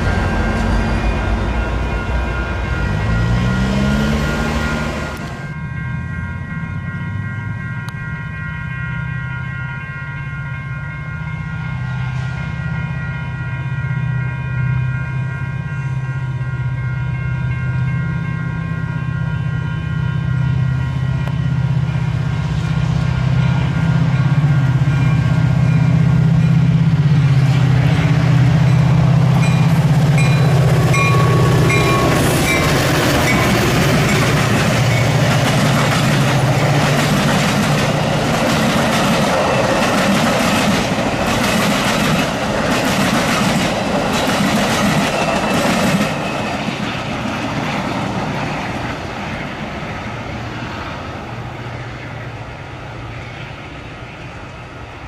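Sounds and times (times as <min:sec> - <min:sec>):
locomotive engine drone: 0:00.0 - 0:55.0
train wheels clicking over rail joints: 0:27.4 - 0:49.2.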